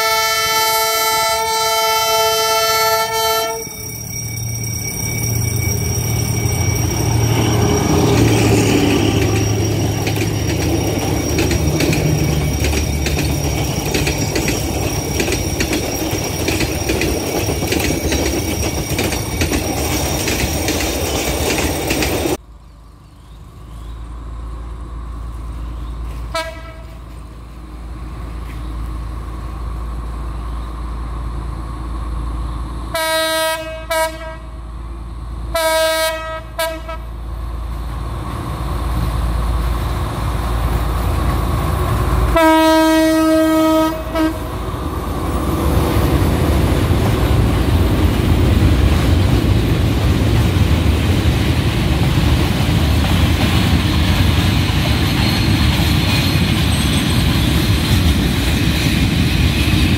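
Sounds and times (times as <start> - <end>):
train horn blasts: 0.0 - 3.9, 26.3 - 27.2, 32.9 - 34.6, 35.5 - 37.2, 42.3 - 44.6
diesel locomotive rumble: 0.0 - 59.9
wheels clicking over rail joints: 5.2 - 22.4.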